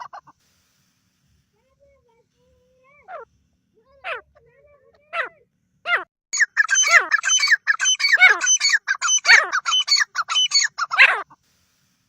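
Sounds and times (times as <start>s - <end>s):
francolin calling: 6.4s - 11.2s.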